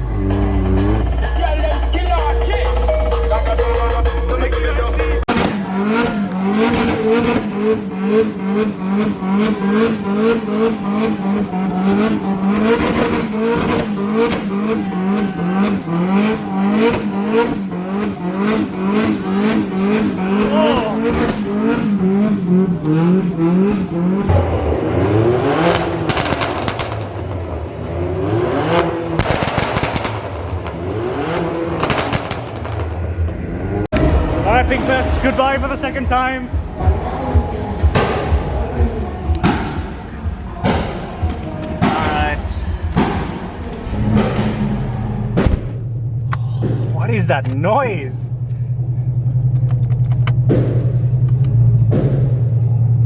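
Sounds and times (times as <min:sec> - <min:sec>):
car engine at high revs: 0:00.0 - 0:01.7, 0:05.2 - 0:53.0
deep engine rumble revving: 0:00.0 - 0:53.0
exhaust pops and bangs: 0:05.3 - 0:24.9, 0:25.6 - 0:27.5, 0:28.7 - 0:33.1, 0:37.8 - 0:47.8, 0:49.4 - 0:52.9.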